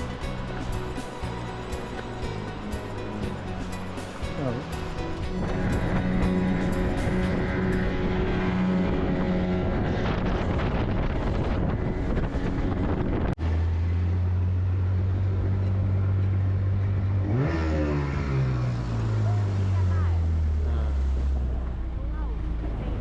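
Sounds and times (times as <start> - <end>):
boat engine running: 0.0 - 17.4
deep engine drone: 0.0 - 23.0
wind buffeting microphone: 5.1 - 13.4.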